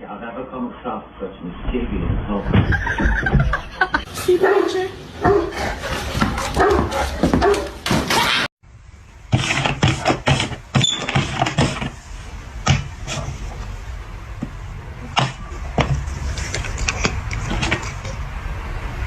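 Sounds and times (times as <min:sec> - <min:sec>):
sharp knocks and clatter: 0:02.4 - 0:03.8, 0:14.4 - 0:18.2
dog barking and whimpering: 0:04.2 - 0:08.5.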